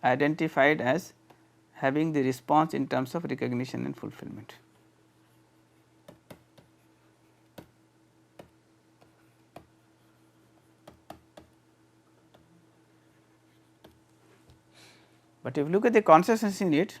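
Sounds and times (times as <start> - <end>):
low electrical hum: 0.0 - 17.0
faint clicks and taps: 13.8 - 14.6.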